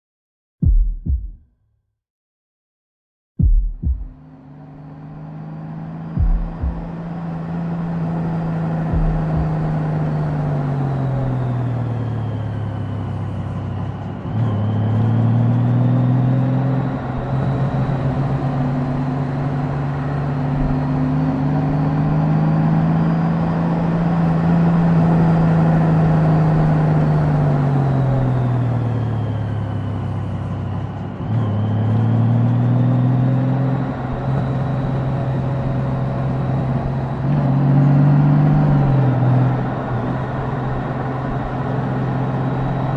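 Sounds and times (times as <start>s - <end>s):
motorcycle engine under way: 3.4s - 13.3s
road and wind noise: 4.0s - 42.9s.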